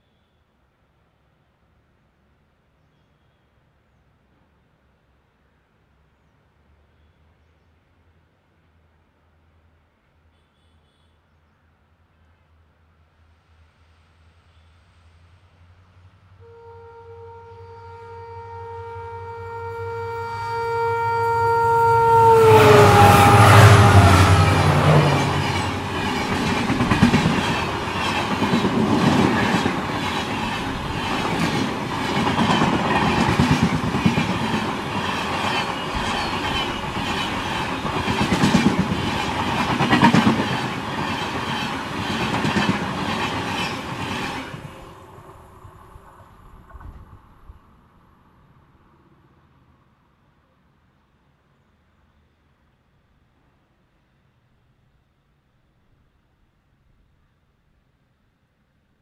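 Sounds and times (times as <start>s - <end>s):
two-tone train air horn: 16.4s - 26.0s
train coaches rushing past: 20.2s - 47.8s
clickety-clack of wheels on rails: 22.7s - 47.6s.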